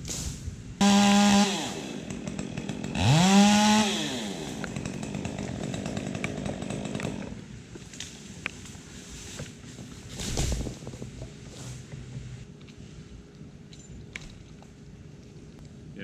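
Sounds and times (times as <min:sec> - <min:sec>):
chainsaw revving: 0:00.8 - 0:07.4
chainsaw idling: 0:00.8 - 0:07.5.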